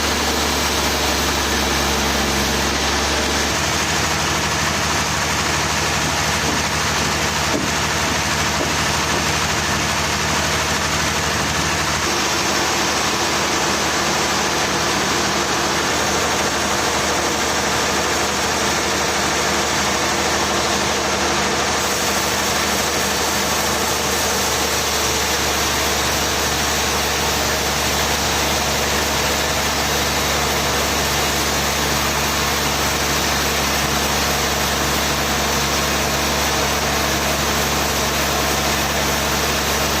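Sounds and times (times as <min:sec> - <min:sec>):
machine engine running: 0:00.0 - 0:40.0.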